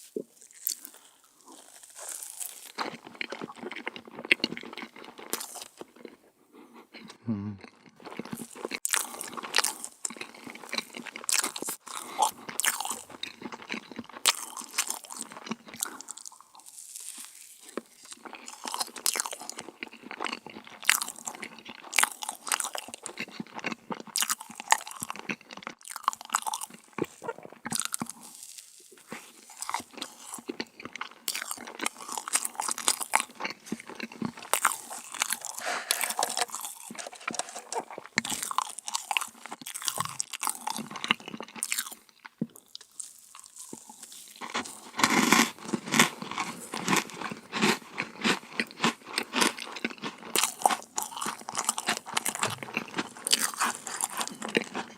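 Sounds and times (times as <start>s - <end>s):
crisp crunching and chewing: 0.0s - 6.2s, 6.9s - 54.9s.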